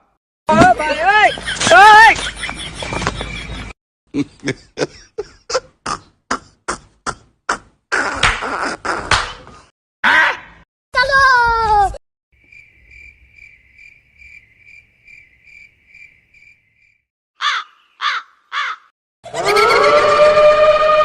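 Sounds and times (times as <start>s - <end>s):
cricket chirping: 12.4s - 17.0s
crow cawing: 17.4s - 18.9s.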